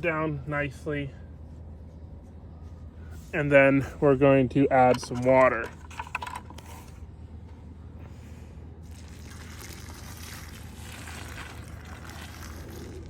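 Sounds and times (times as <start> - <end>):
steady low hum: 0.0 - 13.0
water pouring onto soil: 8.8 - 13.0.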